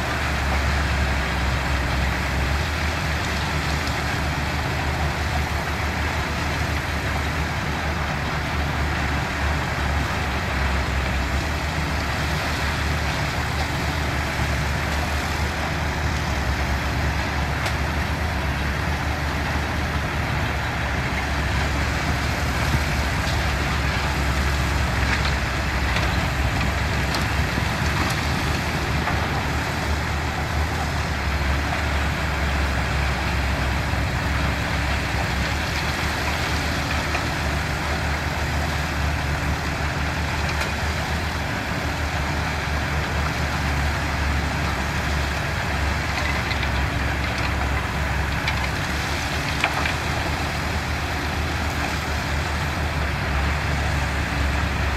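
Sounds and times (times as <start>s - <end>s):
heavy diesel engines humming: 0.0s - 54.9s.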